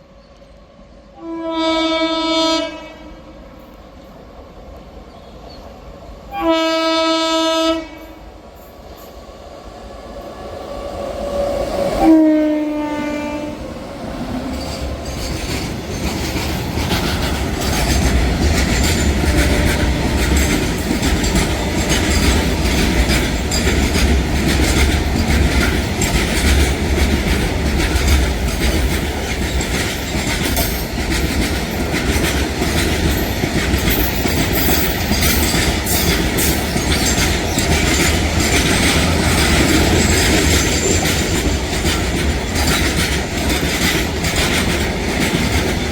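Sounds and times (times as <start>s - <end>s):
train rumbling past: 0.0s - 45.9s
train horn blast: 1.2s - 3.5s, 6.3s - 8.2s, 12.0s - 13.6s
wheels clicking over rail joints: 14.5s - 45.9s.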